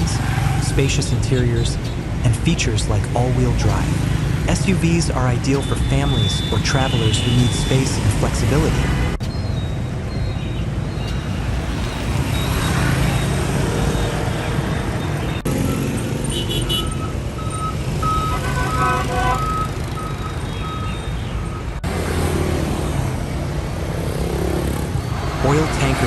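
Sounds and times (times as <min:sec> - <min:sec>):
road traffic noise: 0:00.0 - 0:26.0
vehicle engines running: 0:00.0 - 0:26.0
short high beeping tones: 0:16.9 - 0:21.2.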